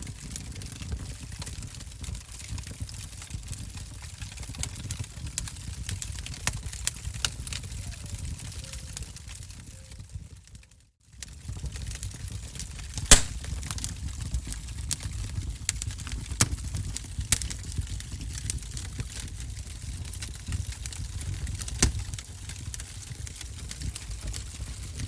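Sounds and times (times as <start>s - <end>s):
wood fire crackling and popping: 0.1s - 10.0s, 11.1s - 25.0s
fire flame rumble: 11.3s - 25.0s.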